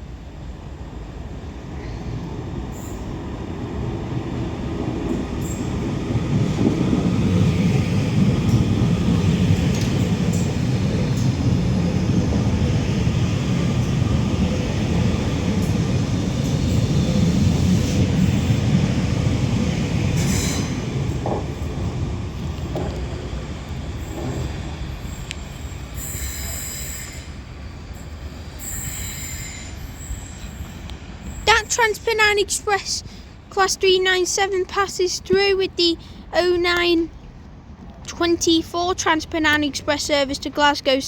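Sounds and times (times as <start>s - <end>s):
train wheels rumbling on rail: 0.0s - 41.0s.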